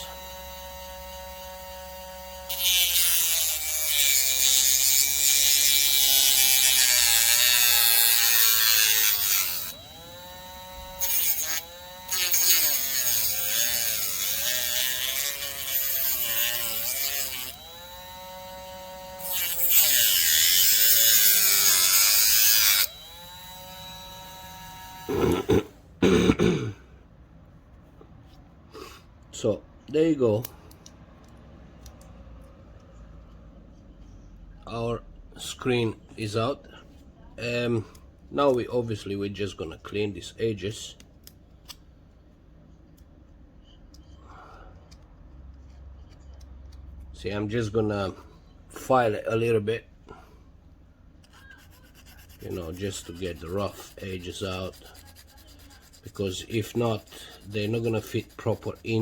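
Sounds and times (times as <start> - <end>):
rotary tool cutting plastic: 0.0 - 25.6, 51.3 - 59.0.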